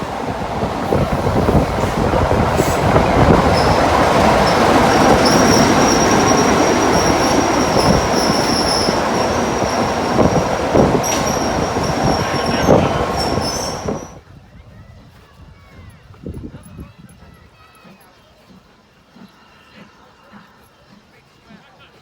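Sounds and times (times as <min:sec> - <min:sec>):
high wheel squeal: 0:00.0 - 0:14.2
train rumbling along track: 0:00.0 - 0:14.2.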